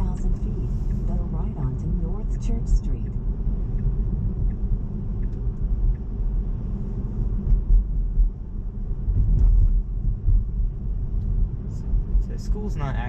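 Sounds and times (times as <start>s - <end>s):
faint light ticks: 5.2s - 6.1s.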